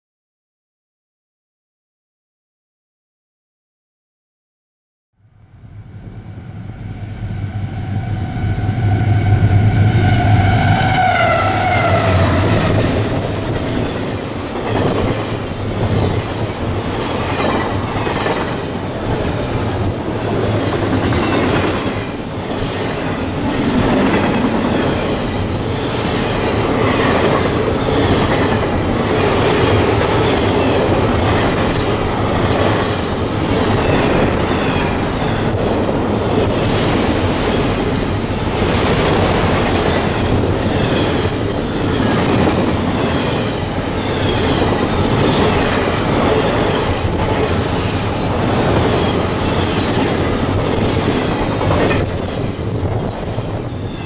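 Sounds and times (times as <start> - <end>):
locomotive engine drone: 5.2 - 14.6
train horn tone: 5.4 - 13.0.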